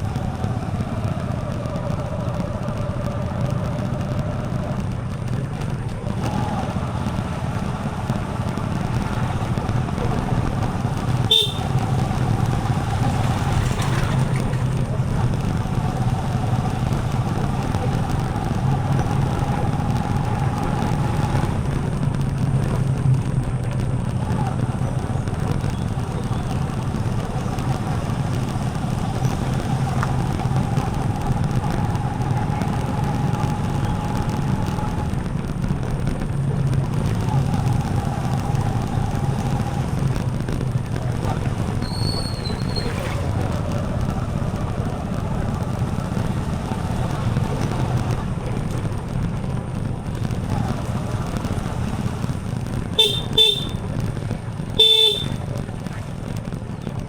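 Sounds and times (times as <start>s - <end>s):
motorcycle engine running: 0.0s - 57.0s
horn toot: 11.2s - 12.2s, 53.0s - 53.9s, 54.8s - 55.4s.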